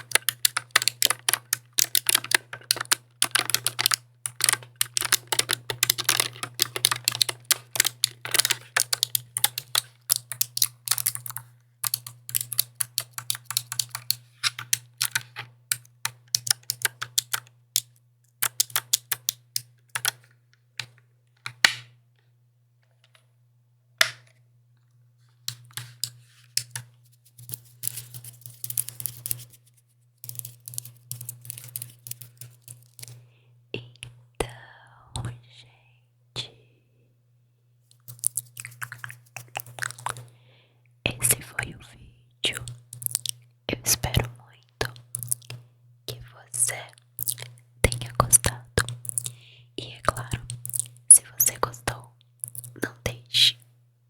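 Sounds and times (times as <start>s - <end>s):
mechanical keyboard typing: 0.0s - 21.8s, 25.5s - 29.5s, 30.2s - 33.2s, 42.5s - 43.4s, 44.8s - 52.9s.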